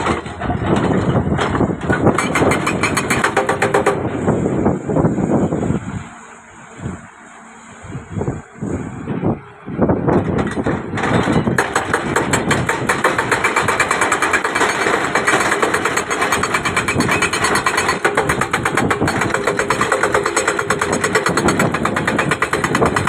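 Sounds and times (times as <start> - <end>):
excavator clattering: 0.0 - 4.4, 10.0 - 23.0.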